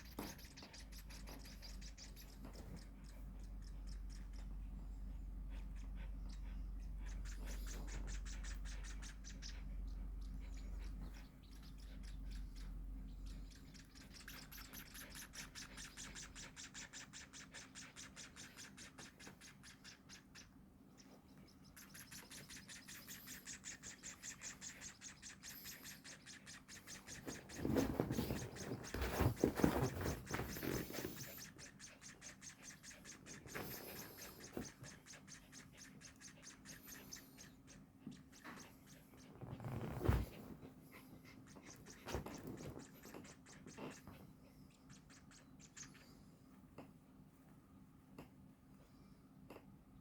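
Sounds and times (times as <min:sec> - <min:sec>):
baby birds begging chirps: 0:00.0 - 0:46.6
scratchy rustle: 0:27.3 - 0:31.4, 0:39.4 - 0:40.7.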